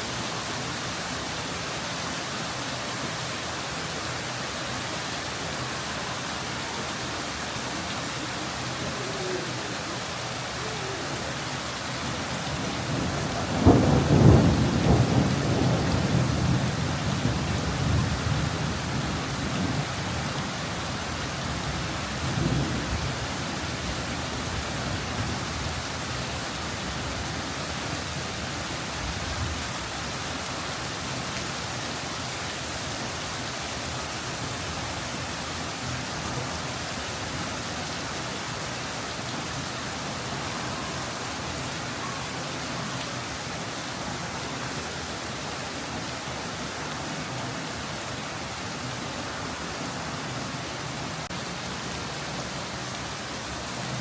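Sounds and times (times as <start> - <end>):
heavy rain downpour: 0.0 - 54.0
thunder rumbling: 12.8 - 18.9.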